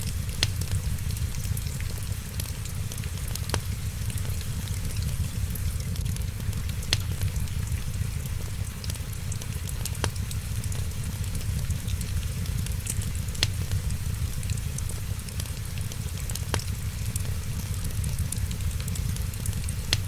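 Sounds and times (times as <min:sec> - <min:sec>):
wood fire crackling: 0:00.0 - 0:20.0
sharp pops of fire: 0:00.1 - 0:20.0.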